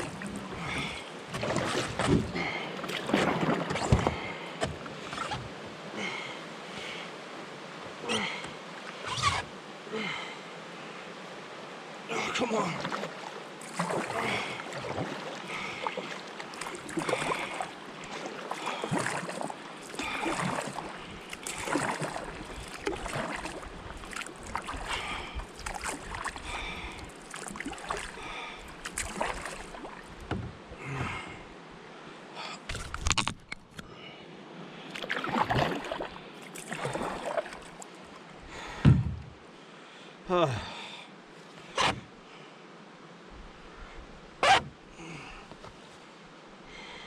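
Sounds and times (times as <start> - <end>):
paddle strokes splashing water: 0.0 - 7.0, 12.5 - 30.5, 34.9 - 38.3
low thump: 38.8 - 39.3.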